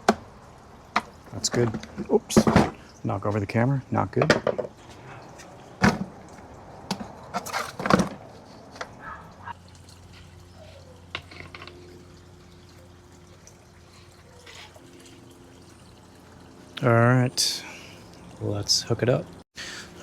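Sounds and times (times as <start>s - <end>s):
low steady hum: 0.0s - 20.0s
plastic filter parts knocking: 0.9s - 2.8s, 4.1s - 4.8s.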